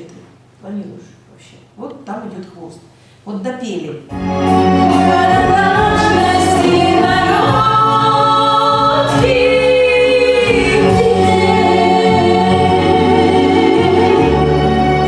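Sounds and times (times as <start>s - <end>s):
sustained keyboard chords: 4.1s - 15.0s
choir-like vocal pad: 4.5s - 15.0s.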